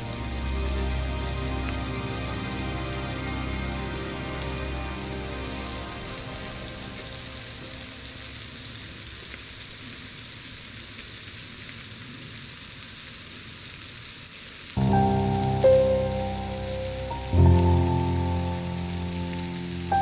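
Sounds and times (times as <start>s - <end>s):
background music: 0.0s - 8.4s, 14.8s - 20.0s
running water hiss: 0.0s - 20.0s.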